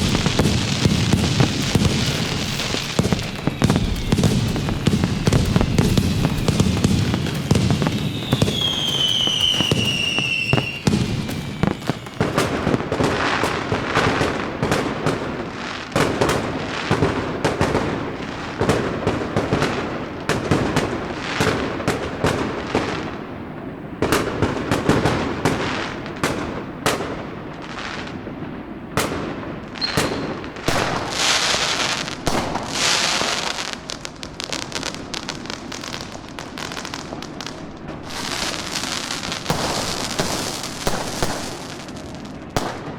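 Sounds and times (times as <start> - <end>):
hissing crackle: 0.0 - 14.1
falling firework whistle: 0.0 - 15.2, 29.7 - 42.9
firecrackers banging and popping: 0.0 - 23.1, 24.0 - 42.9.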